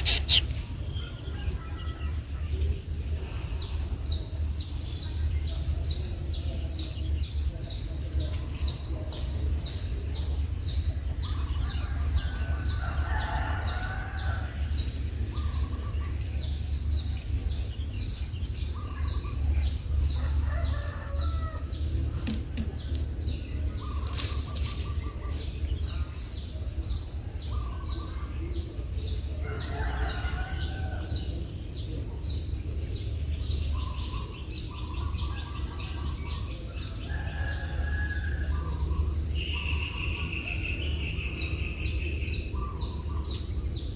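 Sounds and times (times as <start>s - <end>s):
short high bird chirps: 0.0s - 0.6s
lower bird calls: 0.0s - 2.2s.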